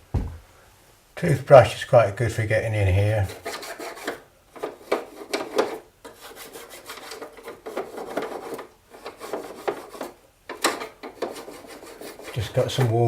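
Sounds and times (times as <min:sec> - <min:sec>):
toothbrush scrubbing: 0:03.2 - 0:10.2, 0:11.1 - 0:13.0.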